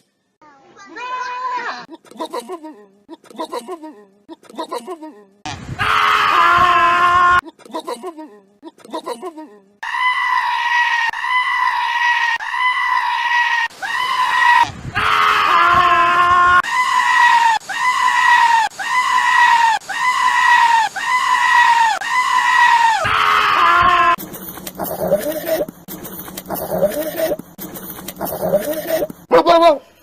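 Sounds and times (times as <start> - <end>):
goat screaming: 9.8 - 24.2.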